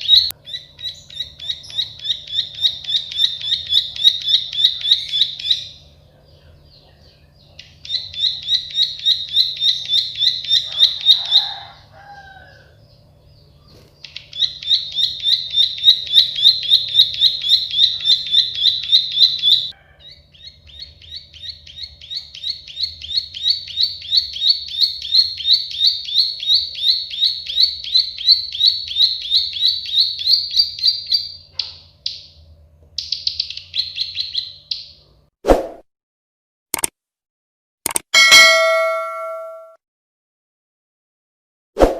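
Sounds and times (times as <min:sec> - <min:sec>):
bird trilling clicking notes: 0:37.9 - 0:39.8.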